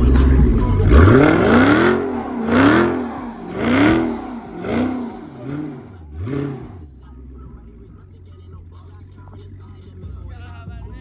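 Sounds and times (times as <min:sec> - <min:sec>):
car engine revving hard: 0:00.0 - 0:07.0.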